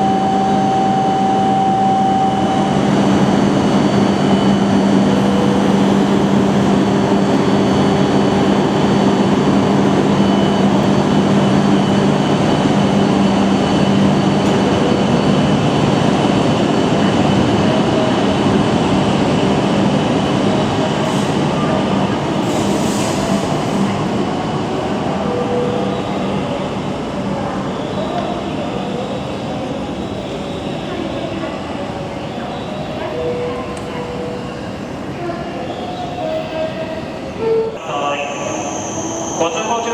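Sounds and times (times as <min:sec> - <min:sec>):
high-speed train running: 0:00.0 - 0:39.9.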